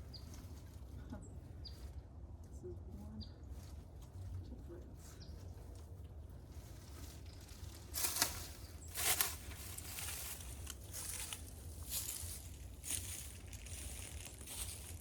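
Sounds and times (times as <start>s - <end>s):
steady low rumble: 0.0s - 15.0s
rustling handling noise: 3.5s - 15.0s.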